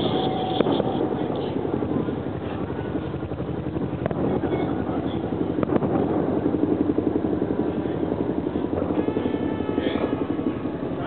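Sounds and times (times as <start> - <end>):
fireworks bangs and crackles: 0.0 - 6.4.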